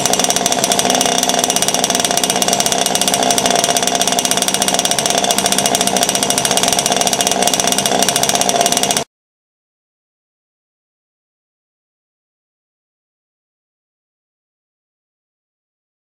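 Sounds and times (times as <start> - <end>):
two-stroke boat engine running: 0.0 - 9.1.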